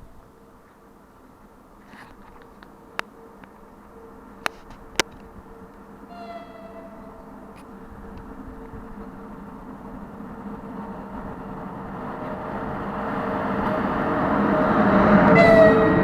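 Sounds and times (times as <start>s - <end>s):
freight train rumble: 0.0s - 16.0s
higher steady tone: 6.1s - 8.6s.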